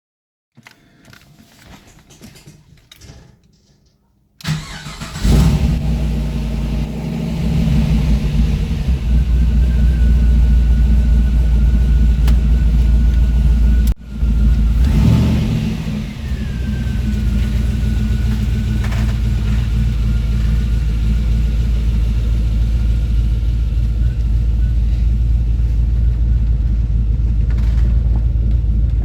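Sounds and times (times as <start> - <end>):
starter cranking: 4.4 - 5.7
car engine idling loudly: 4.6 - 29.0.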